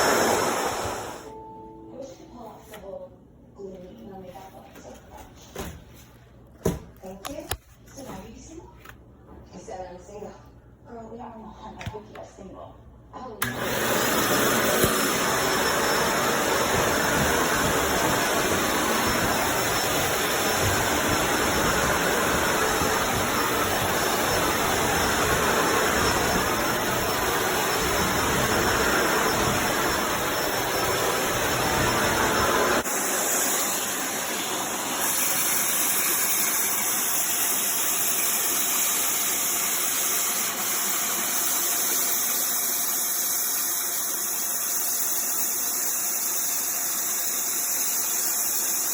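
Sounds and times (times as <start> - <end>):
upright vacuum cleaner on carpet: 0.0 - 1.3, 13.4 - 48.9.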